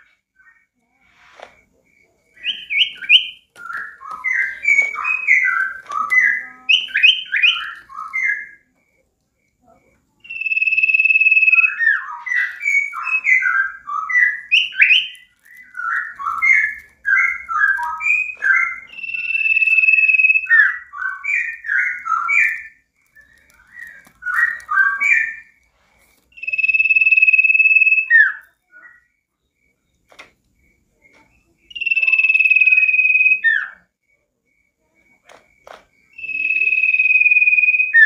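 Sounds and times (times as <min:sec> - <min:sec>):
bird long whistle: 0:02.4 - 0:08.6, 0:10.2 - 0:25.6, 0:26.3 - 0:29.2, 0:31.7 - 0:33.8, 0:36.2 - 0:38.0.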